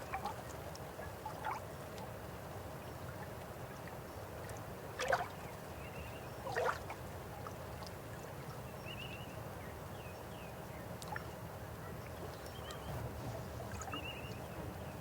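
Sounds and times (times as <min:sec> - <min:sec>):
water splashes: 0:04.4 - 0:05.5, 0:06.4 - 0:08.5, 0:12.1 - 0:15.0
river water flowing: 0:10.5 - 0:15.0.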